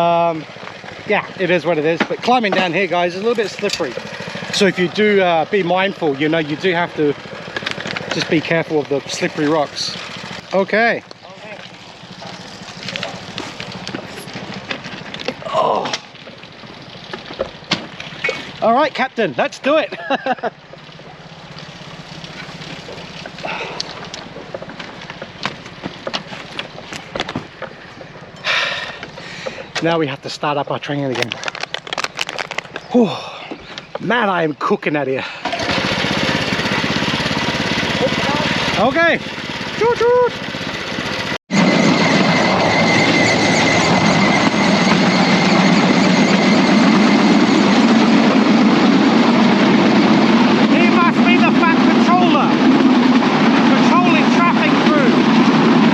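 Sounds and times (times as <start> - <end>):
small motor idling: 0.0 - 18.8, 19.7 - 29.8, 35.3 - 55.9
small rail vehicle running on track: 2.3 - 15.1, 35.4 - 55.9.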